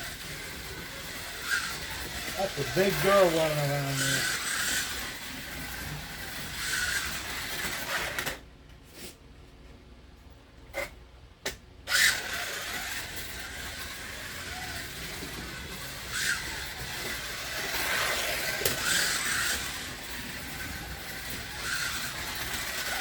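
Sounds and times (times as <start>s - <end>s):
slot car motor whining: 0.0s - 8.4s, 11.8s - 23.0s.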